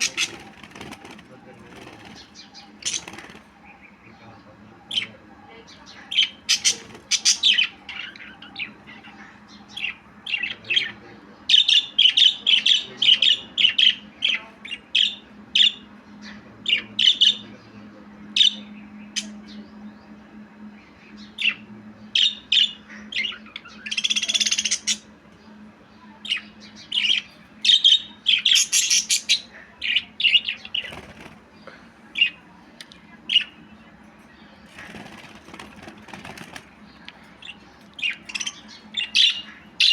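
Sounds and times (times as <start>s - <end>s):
budgerigar chirping: 0.0s - 3.8s, 5.9s - 8.7s
faint low hum: 0.0s - 39.9s.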